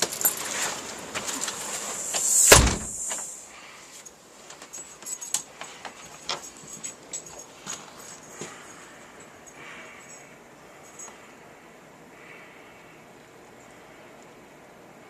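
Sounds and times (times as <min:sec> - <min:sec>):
rushing wind: 0:01.6 - 0:03.4
loud thump: 0:02.0 - 0:03.3
light jingling clicks: 0:04.5 - 0:10.3.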